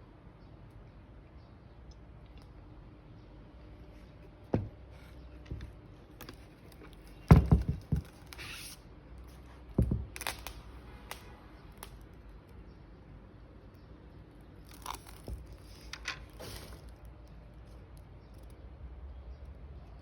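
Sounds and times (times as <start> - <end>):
dull handling knocks: 4.5 - 5.8, 7.2 - 8.2, 9.8 - 10.1.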